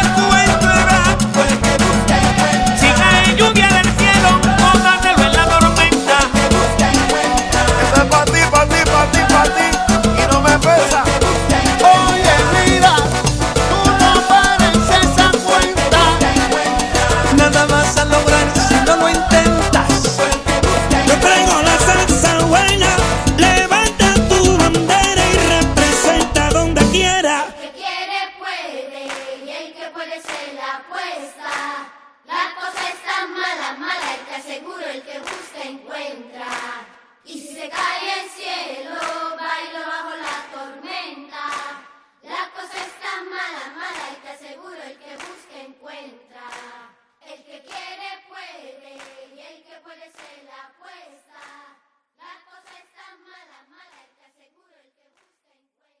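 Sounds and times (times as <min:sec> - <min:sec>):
hand clapping: 0:00.0 - 0:06.4, 0:11.8 - 0:19.2, 0:29.1 - 0:29.4, 0:30.2 - 0:30.6, 0:31.4 - 0:31.8, 0:32.7 - 0:33.2, 0:34.0 - 0:34.4, 0:35.2 - 0:35.7, 0:36.5 - 0:37.0, 0:37.7 - 0:38.1, 0:39.0 - 0:39.3, 0:40.2 - 0:40.6, 0:41.5 - 0:41.9, 0:43.9 - 0:44.3, 0:45.2 - 0:45.5, 0:46.5 - 0:46.8, 0:47.7 - 0:47.9, 0:49.0 - 0:49.3, 0:50.2 - 0:50.4
group of voices singing: 0:00.0 - 0:55.2.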